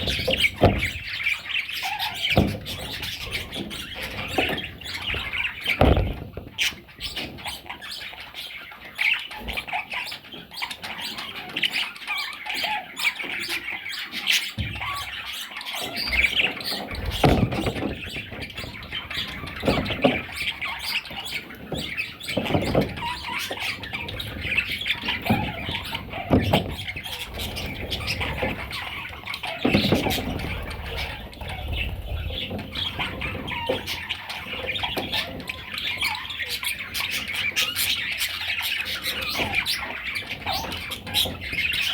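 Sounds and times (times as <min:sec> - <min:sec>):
dull thumps: 0:00.0 - 0:01.2, 0:02.3 - 0:07.4, 0:16.9 - 0:35.6
budgerigars chirping and chattering: 0:00.0 - 0:41.9.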